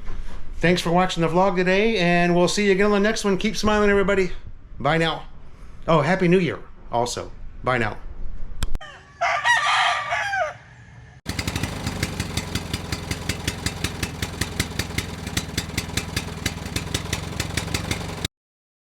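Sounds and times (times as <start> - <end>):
rooster crowing: 8.8 - 11.5.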